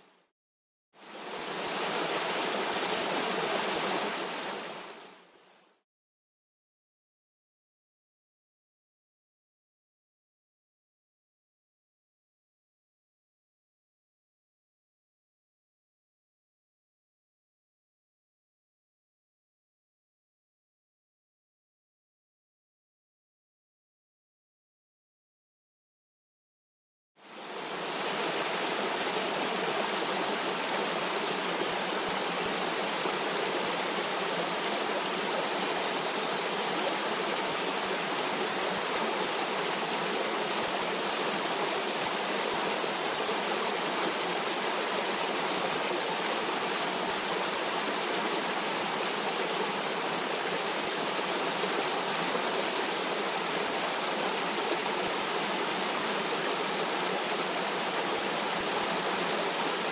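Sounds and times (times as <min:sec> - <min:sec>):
stream water running: 0:01.0 - 0:05.4, 0:27.2 - 0:59.9.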